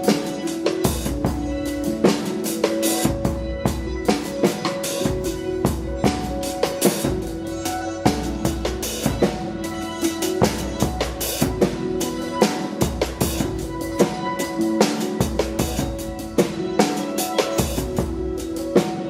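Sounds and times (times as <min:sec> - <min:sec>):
busy drum kit: 0:00.0 - 0:19.0
live rock band playing: 0:00.0 - 0:19.0.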